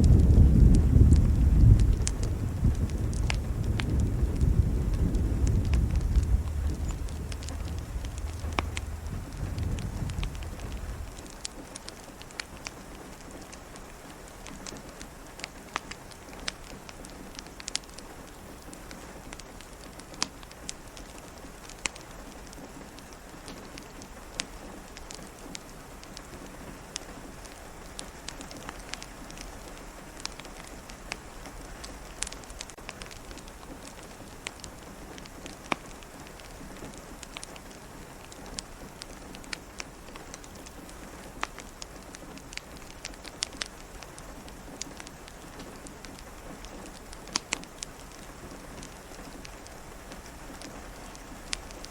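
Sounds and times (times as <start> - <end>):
soft rain hiss: 0.0 - 51.9
wood fire crackling: 0.0 - 51.9.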